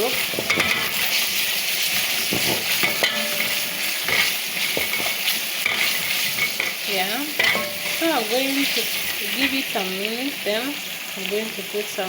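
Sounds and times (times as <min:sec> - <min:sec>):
spoon scraping a pan: 0:00.0 - 0:09.9
food sizzling in oil: 0:00.0 - 0:12.0.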